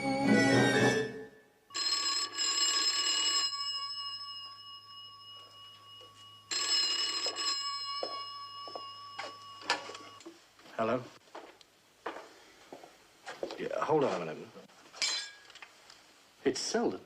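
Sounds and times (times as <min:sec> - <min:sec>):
orchestral music: 0:00.0 - 0:01.4
telephone bell ringing: 0:01.7 - 0:10.2.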